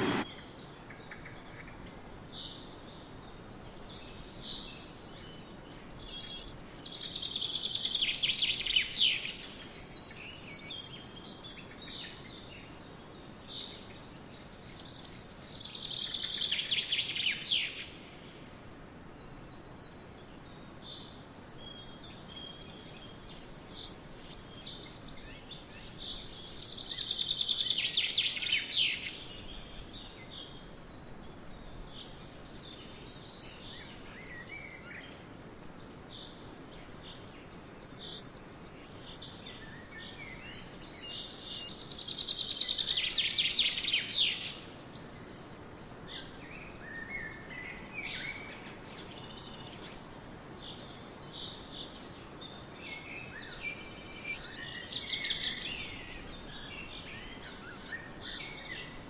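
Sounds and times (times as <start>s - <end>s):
birds chirping: 0.0s - 0.3s
stream rushing: 0.0s - 0.3s
songbird singing: 0.0s - 59.0s.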